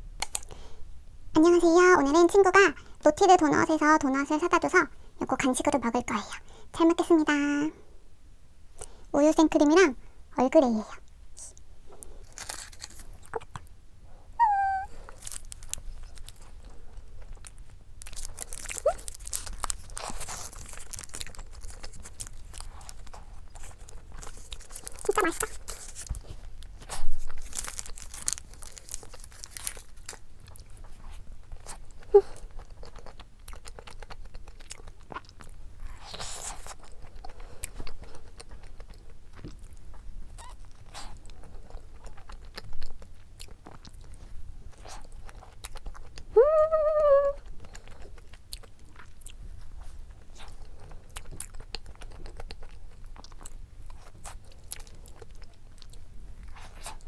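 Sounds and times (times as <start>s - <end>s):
chewing and biting doughnut: 12.0s - 13.7s, 14.5s - 46.4s, 47.4s - 57.0s
person humming mmm: 14.4s - 15.0s, 46.3s - 47.5s.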